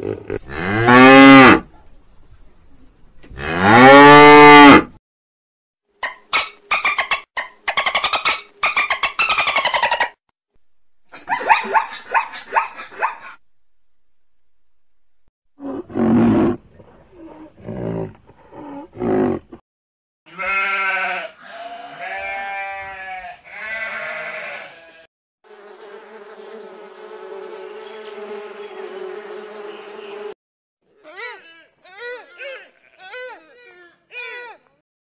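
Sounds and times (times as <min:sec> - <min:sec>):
lamb bleating: 0:20.3 - 0:25.1.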